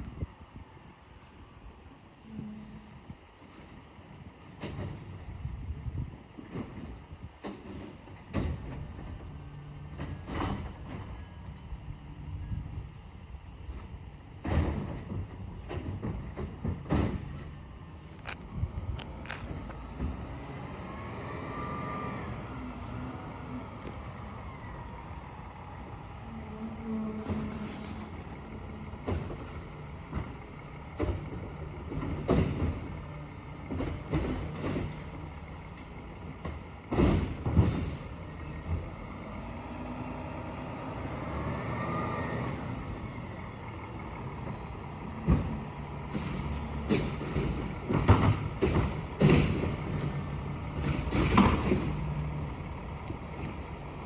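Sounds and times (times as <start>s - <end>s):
garbage truck engine running: 3.9s - 54.0s
clanks and bangs of carts: 6.4s - 9.2s, 9.9s - 11.2s, 14.4s - 17.5s, 28.7s - 39.0s, 44.4s - 53.7s.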